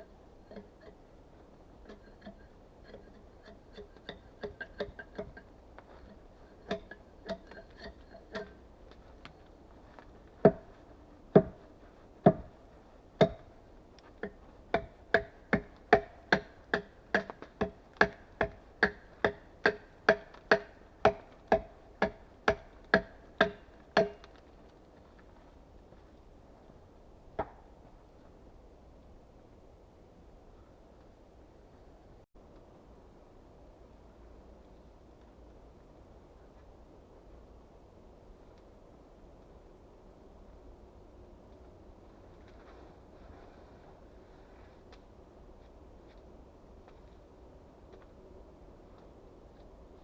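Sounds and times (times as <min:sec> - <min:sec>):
tool knocking on wood: 0:10.5 - 0:10.7, 0:11.4 - 0:11.6, 0:12.3 - 0:12.5, 0:13.2 - 0:13.5, 0:14.2 - 0:24.2.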